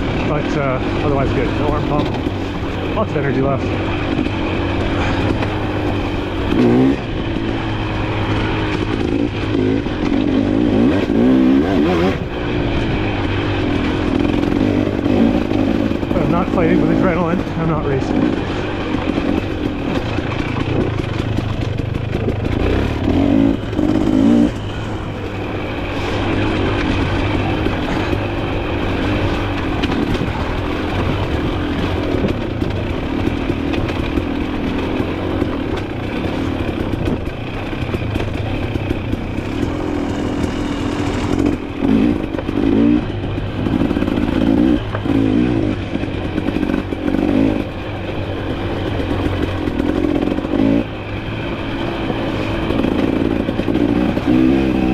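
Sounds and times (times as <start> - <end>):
dirt bike engine revving: 0.0 - 54.9
bike clattering over rough ground: 12.7 - 50.8.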